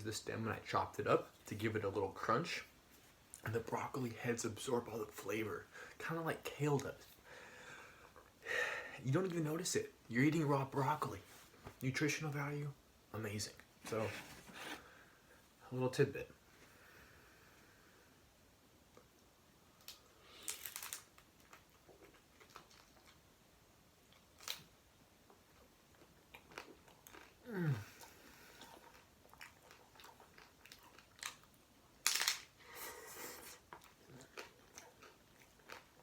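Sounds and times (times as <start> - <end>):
crunching and chewing food: 18.9 - 36.0.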